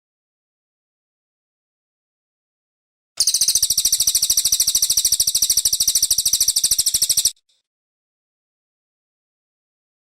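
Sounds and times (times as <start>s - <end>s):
bird singing fast trill: 3.2s - 7.5s.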